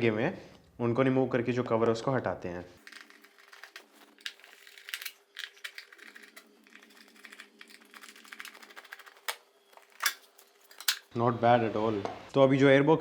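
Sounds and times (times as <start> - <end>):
hand tool clicking on screws: 2.8 - 11.1
plastic parts knocking: 2.8 - 11.1.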